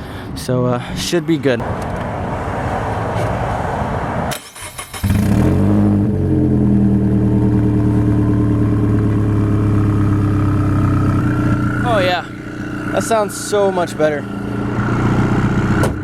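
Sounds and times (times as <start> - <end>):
car engine starting and idling: 4.3 - 16.0.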